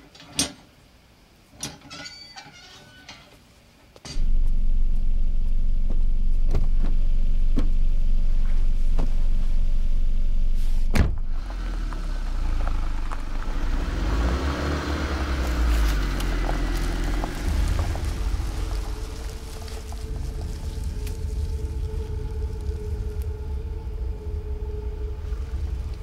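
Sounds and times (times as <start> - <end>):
car engine rumbling: 4.1 - 26.0
car door shutting: 10.8 - 11.4.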